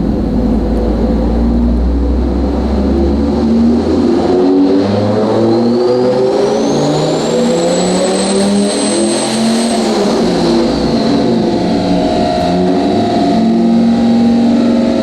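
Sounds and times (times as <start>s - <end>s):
high turbo whine: 0.0s - 15.0s
truck engine running hard: 0.0s - 15.0s.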